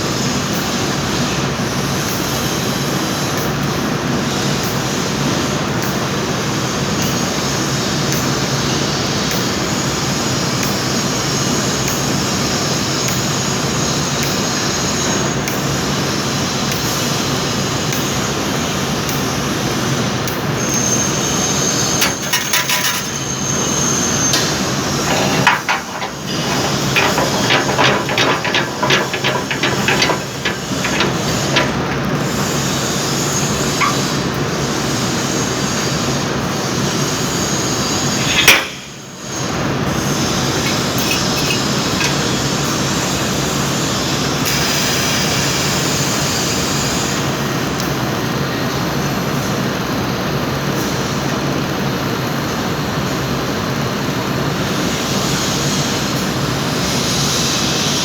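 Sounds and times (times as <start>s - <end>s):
machine running: 22.0s - 35.4s.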